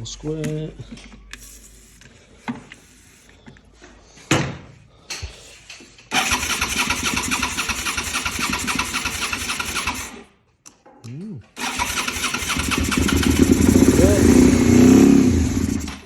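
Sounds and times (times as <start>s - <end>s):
motorcycle engine knocking and running: 6.2s - 10.2s, 11.6s - 16.0s.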